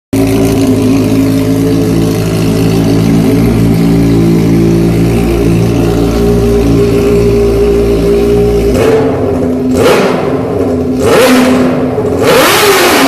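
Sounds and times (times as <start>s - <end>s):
motorcycle engine idling: 0.2s - 12.2s.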